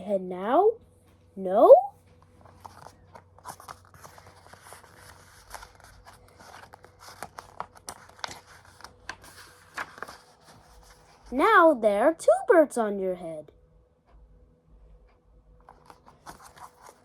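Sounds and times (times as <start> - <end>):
paper pages rustling and turning: 2.0 - 11.4, 15.6 - 17.0
soft clicks and crinkles: 14.0 - 17.0.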